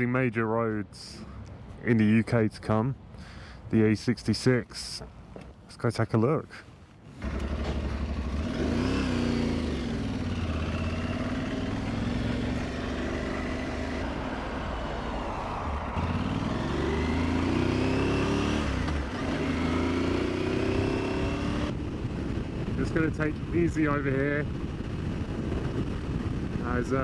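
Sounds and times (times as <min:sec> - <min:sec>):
wind and road noise: 0:00.0 - 0:27.0
motorcycle engine accelerating: 0:07.2 - 0:27.0.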